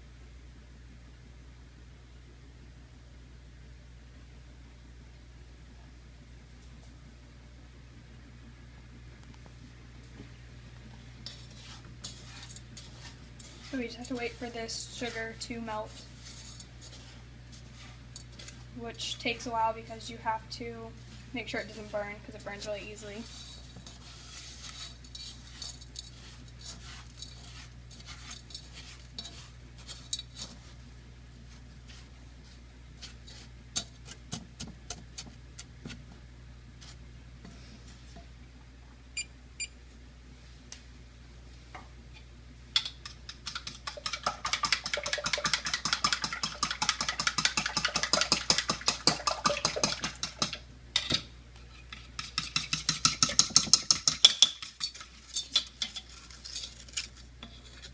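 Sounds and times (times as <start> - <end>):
low steady hum: 0.0 - 57.9
utensil scraping a pan: 11.1 - 35.3, 51.6 - 57.9.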